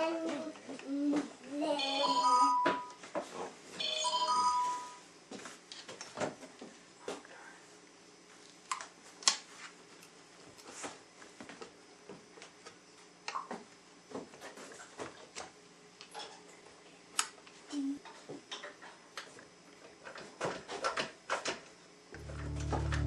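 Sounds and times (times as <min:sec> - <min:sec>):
music: 0:22.2 - 0:23.0.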